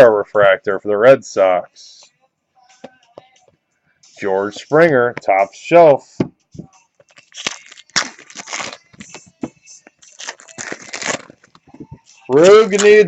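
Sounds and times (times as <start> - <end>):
trading cards rustling and scraping: 7.0 - 13.0.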